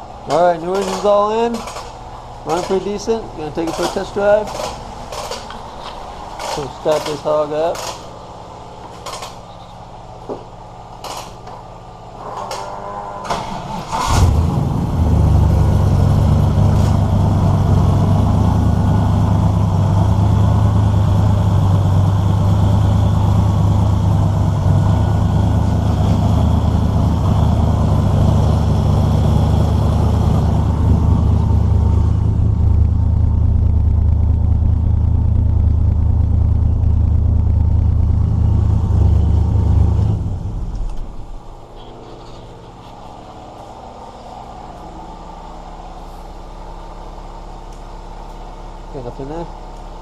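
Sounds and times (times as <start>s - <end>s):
engine cranking and starting: 0.7s - 3.0s, 6.4s - 8.0s, 12.4s - 14.8s
engine idling loudly: 14.7s - 40.7s.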